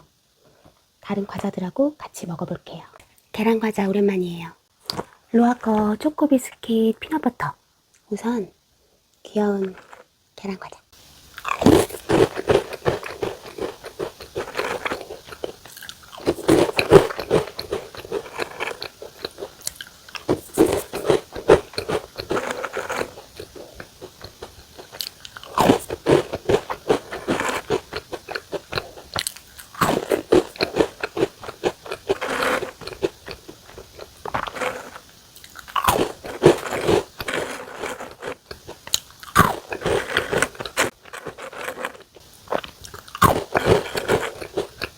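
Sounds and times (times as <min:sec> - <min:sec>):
crunching crisp biscuits: 0:04.8 - 0:05.9, 0:09.5 - 0:10.1, 0:11.2 - 0:44.9.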